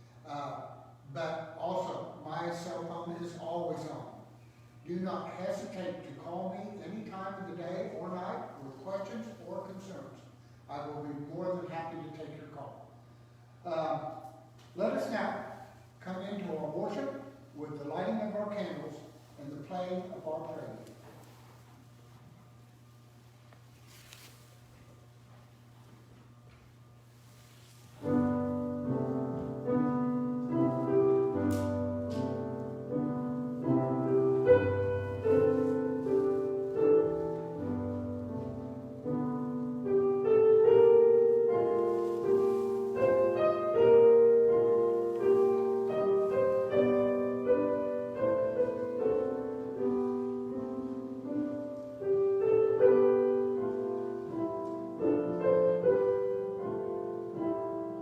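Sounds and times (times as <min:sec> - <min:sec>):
slow chordal piano: 0:28.0 - 0:58.0.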